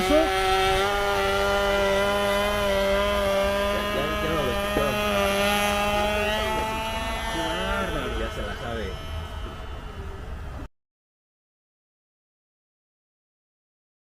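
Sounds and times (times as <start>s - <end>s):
model airplane engine running: 0.0s - 10.7s
faint voices: 3.4s - 10.7s.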